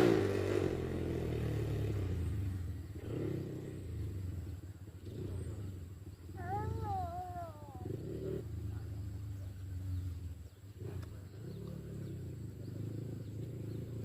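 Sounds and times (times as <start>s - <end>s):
motorcycle engine rumbling: 0.0s - 14.0s.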